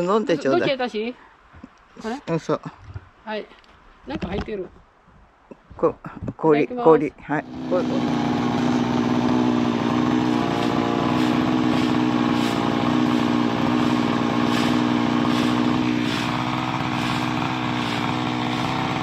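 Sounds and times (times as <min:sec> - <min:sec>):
engine idling: 0:07.4 - 0:19.0.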